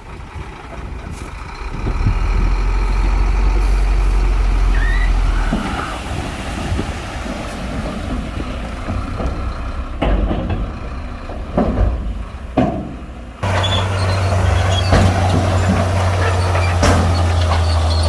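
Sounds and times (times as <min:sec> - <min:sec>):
bulldozer diesel engine: 0:00.0 - 0:18.0
sharp knocks: 0:08.8 - 0:13.1.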